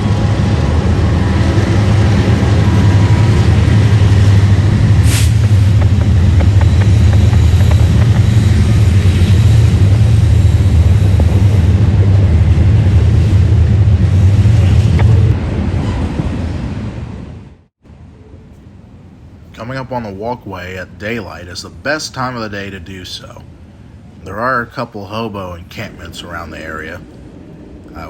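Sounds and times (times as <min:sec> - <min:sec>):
diesel locomotive engine rumble: 0:00.0 - 0:28.0
brief hiss: 0:05.0 - 0:05.8.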